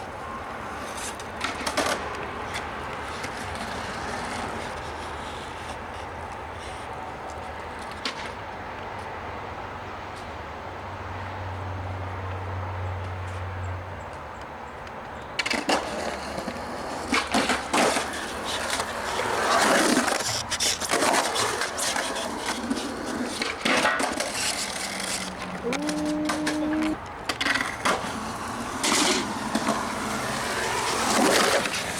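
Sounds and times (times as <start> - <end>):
skateboard rolling: 0.0 - 8.4, 15.4 - 31.9
skateboard clacks and knocks: 15.4 - 31.9.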